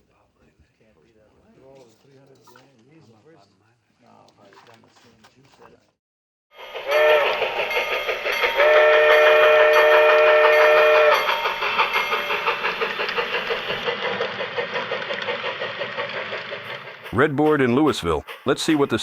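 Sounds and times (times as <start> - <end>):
locomotive whistle blasts: 6.6 - 12.5
rhythmic beat of running train: 6.6 - 19.0.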